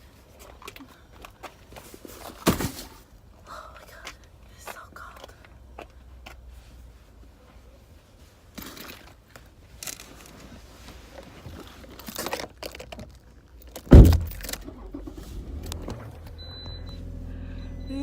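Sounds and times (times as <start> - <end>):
rustling handling sounds: 4.7 - 14.6
car door shutting: 13.9 - 17.9
low steady hum: 13.9 - 18.0.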